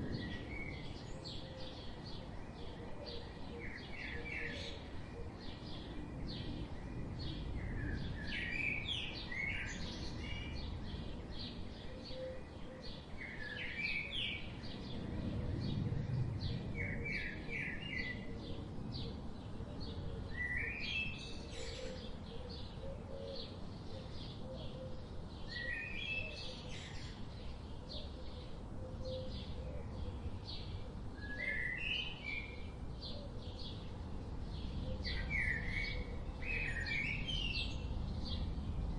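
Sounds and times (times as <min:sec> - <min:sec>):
steady low background rumble: 0:00.0 - 0:02.6.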